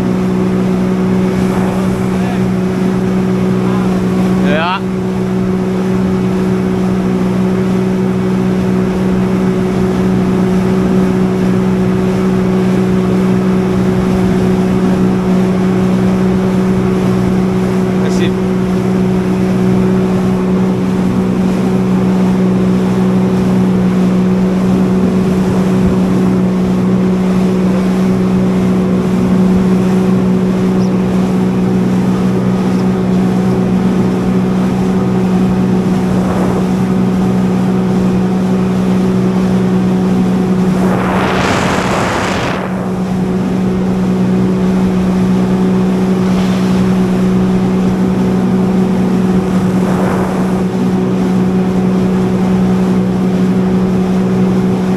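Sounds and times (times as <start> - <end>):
jet ski engine droning: 0.0 - 54.9
rush of noise: 39.9 - 52.4.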